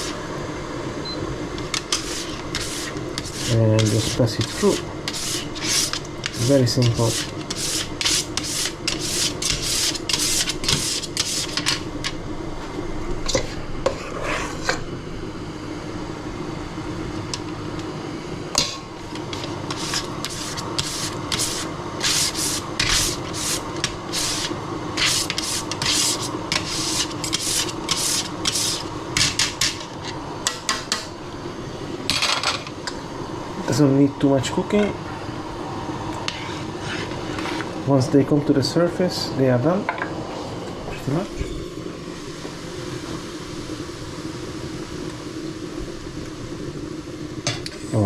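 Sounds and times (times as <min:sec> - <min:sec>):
dumpling maker scraping: 0:01.5 - 0:12.2, 0:19.0 - 0:31.1.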